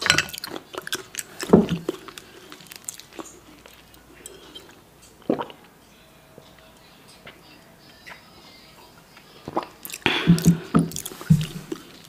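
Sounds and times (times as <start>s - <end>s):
wet chewing mouth sounds: 0.0s - 5.7s, 9.2s - 12.0s
gulp of water: 9.5s - 11.8s.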